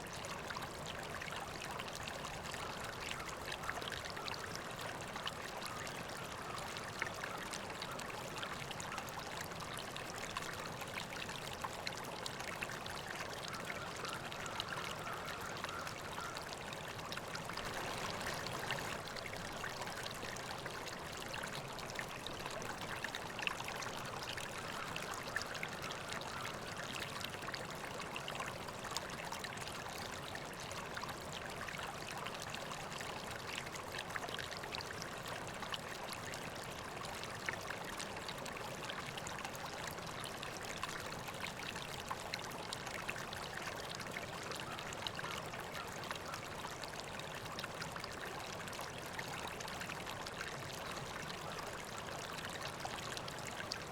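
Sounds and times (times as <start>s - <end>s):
river flowing: 9.0s - 45.2s.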